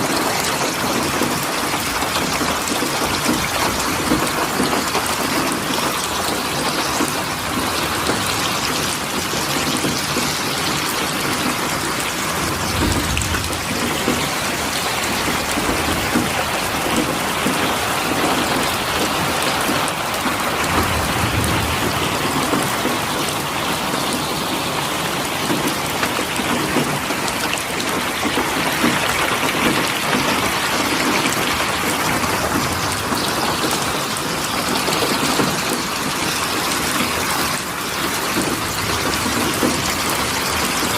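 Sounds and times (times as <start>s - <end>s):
heavy rain pattering: 0.0s - 40.9s
brief low rumbles: 12.4s - 14.7s.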